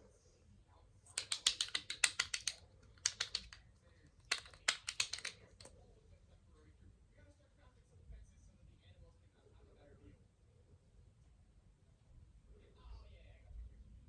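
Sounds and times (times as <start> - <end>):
rapid tapping on hard object: 1.2 - 3.6, 4.3 - 5.6.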